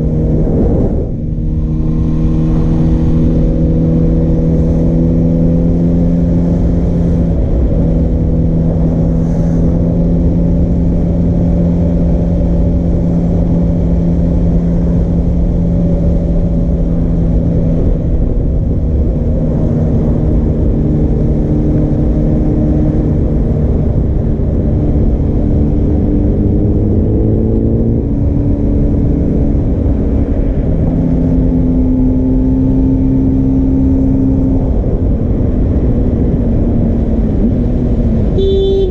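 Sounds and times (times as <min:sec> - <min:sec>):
motorcycle engine running loud: 0:00.0 - 0:38.9.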